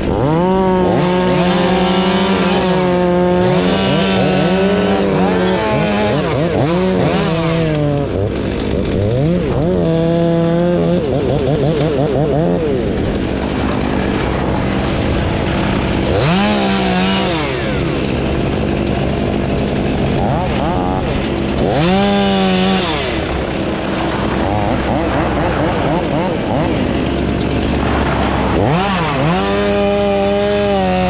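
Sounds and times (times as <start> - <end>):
chainsaw engine revving: 0.0 - 31.0
second engine: 0.0 - 31.0.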